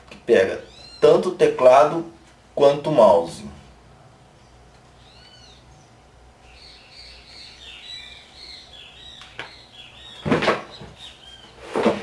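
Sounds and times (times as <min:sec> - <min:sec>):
bird chirping: 0:00.6 - 0:01.2, 0:04.3 - 0:11.6.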